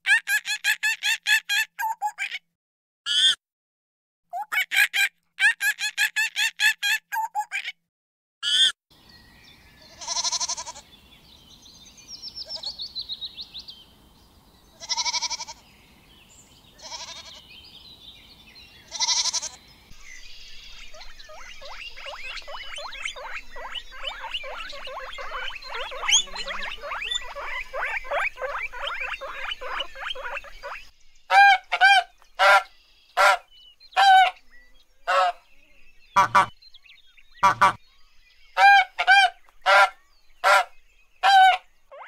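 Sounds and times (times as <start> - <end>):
goat bleating: 9.9 - 10.8, 14.8 - 15.6, 16.8 - 17.4, 18.9 - 19.6
guinea pigs squeaking: 20.9 - 30.9, 36.2 - 36.5, 37.4 - 37.8.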